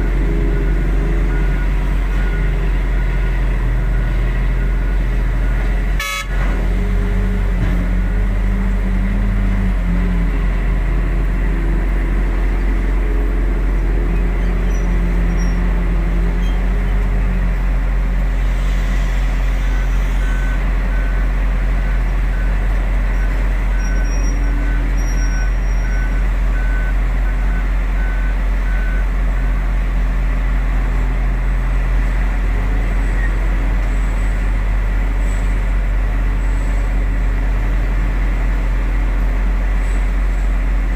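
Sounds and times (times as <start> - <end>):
reversing alarm beeping: 0.0 - 11.1, 19.2 - 29.6
heavy diesel engines droning: 0.0 - 40.9.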